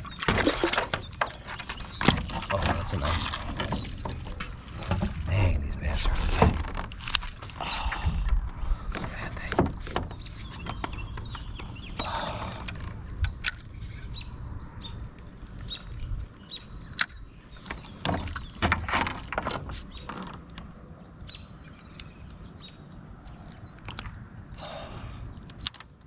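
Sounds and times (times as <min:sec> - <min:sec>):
fishing gear clicking and rattling: 0:00.0 - 0:05.3, 0:06.2 - 0:07.6, 0:08.2 - 0:13.9.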